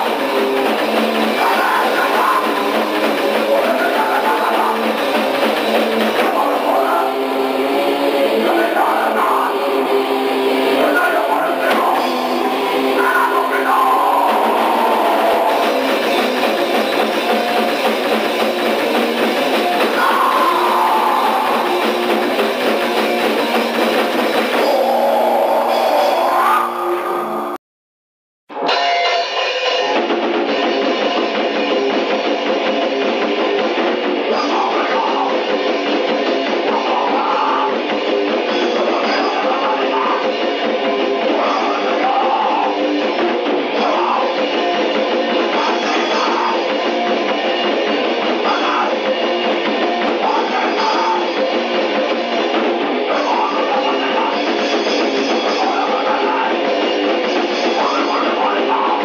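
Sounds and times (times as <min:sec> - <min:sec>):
shouted vocals: 0:00.0 - 0:16.0, 0:19.6 - 0:22.4, 0:24.5 - 0:27.6
fast drums: 0:00.0 - 0:27.3, 0:29.0 - 0:59.0
distorted electric guitar: 0:00.0 - 0:27.6, 0:28.5 - 0:59.0.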